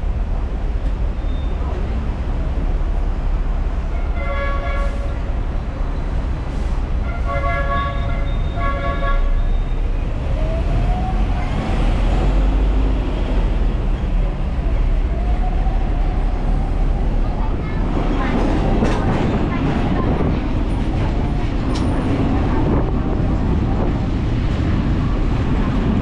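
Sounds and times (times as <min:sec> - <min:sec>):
tram rumbling: 0:00.0 - 0:26.0
tram horn tooting: 0:03.8 - 0:05.4, 0:07.0 - 0:09.9.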